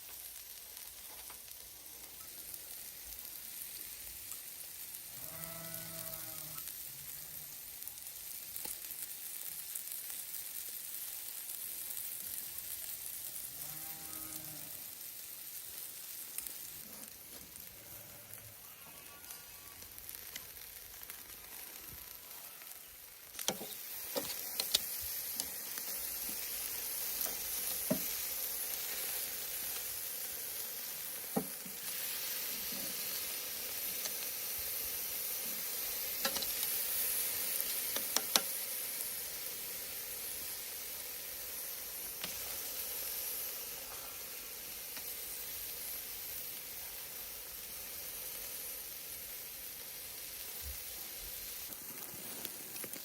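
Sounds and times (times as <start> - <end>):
steak sizzling on a grill: 0.0 - 53.0.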